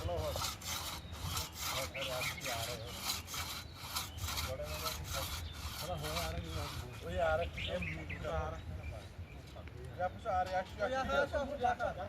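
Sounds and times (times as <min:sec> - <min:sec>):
hand saw cutting wood: 0:00.0 - 0:07.1.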